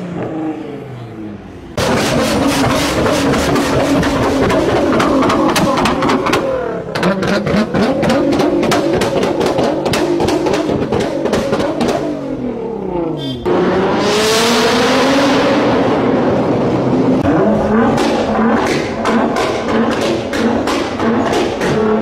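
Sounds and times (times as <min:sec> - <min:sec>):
car accelerating in tunnel: 0:00.0 - 0:22.0
car engine revving: 0:00.0 - 0:22.0
sharp exhaust pops: 0:01.8 - 0:12.1, 0:17.7 - 0:22.0.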